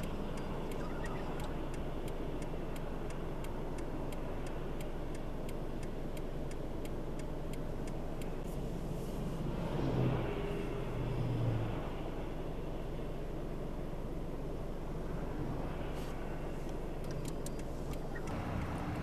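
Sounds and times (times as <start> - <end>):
light regular ticking: 0.0 - 8.5, 16.7 - 19.0
vehicle and road noise: 0.0 - 19.0.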